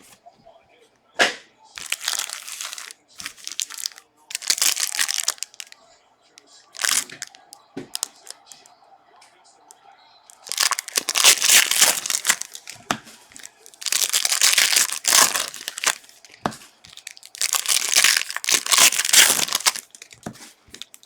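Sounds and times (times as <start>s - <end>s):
plastic wrappers crinkling and tearing: 1.8s - 5.8s, 6.7s - 8.6s, 10.3s - 21.0s.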